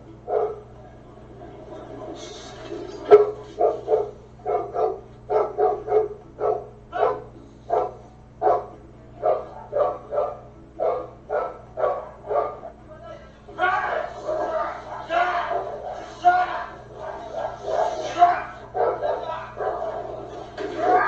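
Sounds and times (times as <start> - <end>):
dog barking: 0.3 - 0.7, 3.1 - 12.8, 13.7 - 21.0.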